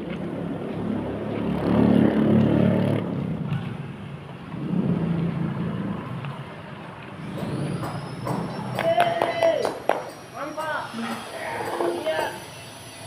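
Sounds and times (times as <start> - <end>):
vehicle engine passing: 0.0 - 8.8.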